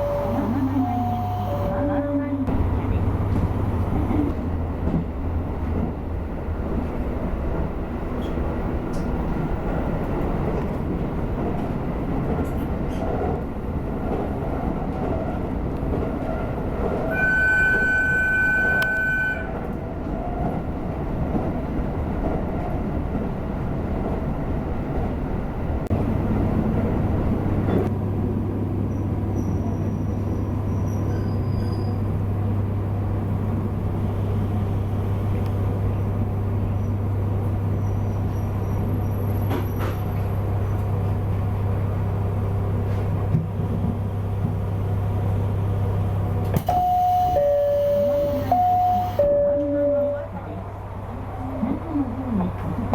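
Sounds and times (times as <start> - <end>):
train rumble inside carriage: 0.0 - 52.9
high tone: 46.7 - 50.4.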